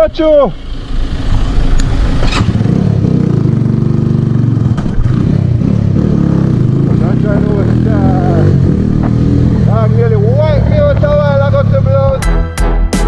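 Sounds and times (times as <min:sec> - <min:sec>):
motorcycle engine running: 0:00.6 - 0:12.3.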